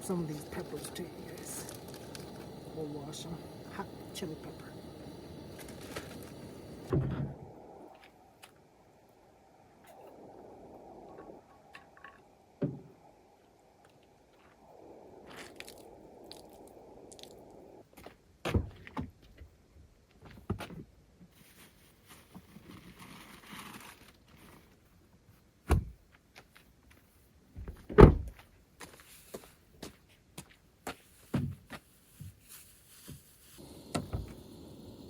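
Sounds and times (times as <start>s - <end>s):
soft hiss: 0.0s - 17.9s, 31.1s - 35.0s.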